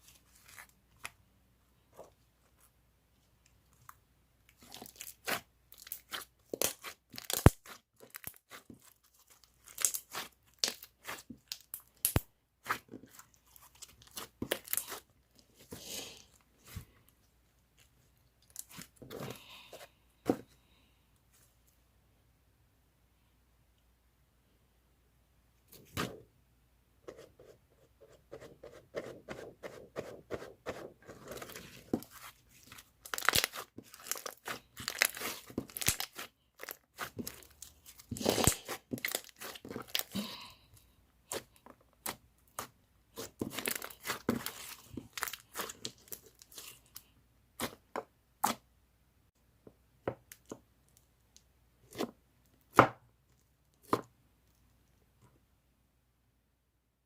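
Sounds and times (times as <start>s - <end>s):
slime squished by hand: 32.0s - 40.2s.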